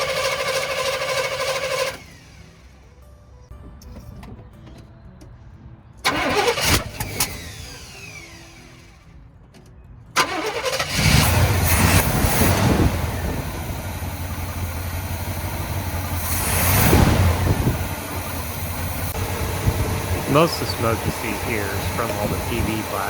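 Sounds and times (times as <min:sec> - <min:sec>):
pickup truck engine running: 0:00.0 - 0:02.9, 0:10.2 - 0:23.0.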